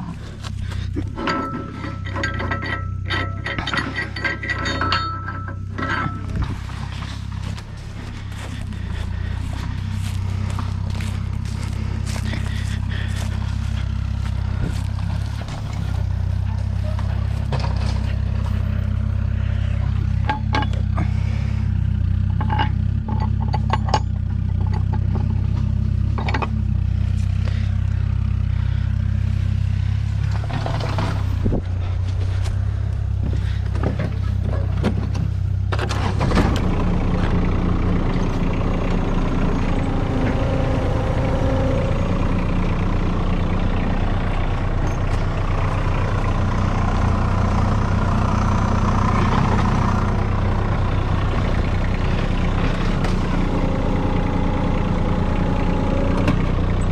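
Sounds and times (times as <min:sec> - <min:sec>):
tractor engine running: 0:00.0 - 0:56.9
metal clanks: 0:00.4 - 0:19.0, 0:19.9 - 0:21.1, 0:22.2 - 0:27.7.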